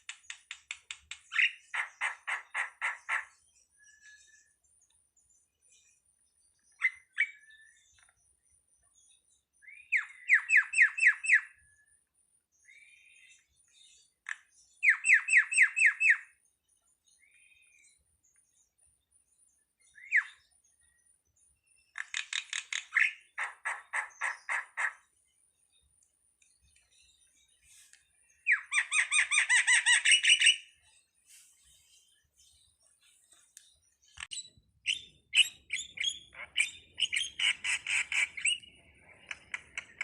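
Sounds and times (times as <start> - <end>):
starling harsh calls: 1.4 - 3.3, 22.0 - 25.0, 34.9 - 38.7.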